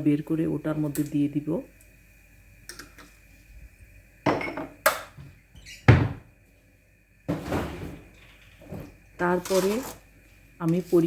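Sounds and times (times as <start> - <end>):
kitchen items knocking and thudding: 4.2 - 6.3, 7.3 - 10.0.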